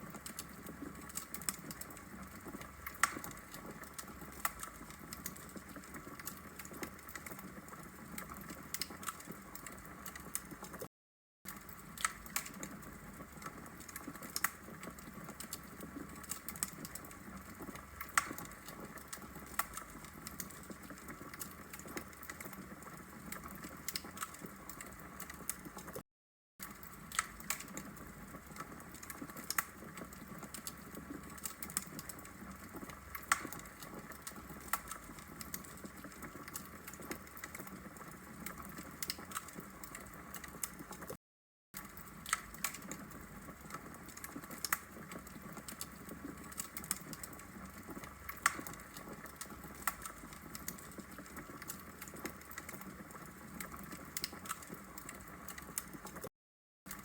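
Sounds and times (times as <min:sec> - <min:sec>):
fire crackling and popping: 0:00.0 - 0:10.9, 0:11.5 - 0:26.0, 0:26.6 - 0:41.2, 0:41.8 - 0:56.3.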